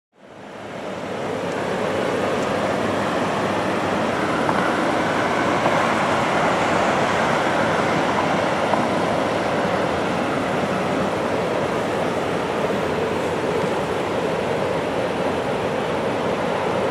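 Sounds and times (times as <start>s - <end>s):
freight train rumbling on track: 0.2s - 16.9s
mountain river rushing: 0.2s - 16.9s.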